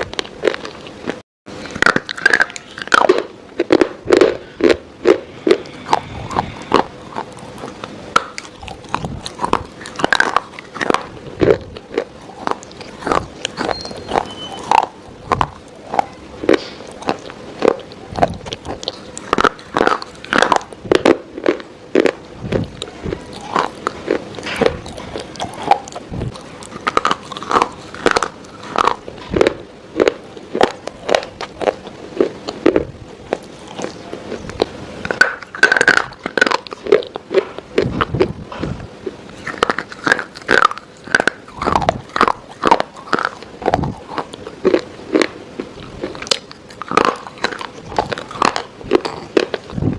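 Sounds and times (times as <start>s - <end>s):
crunchy bites and chewing: 0.0s - 49.9s.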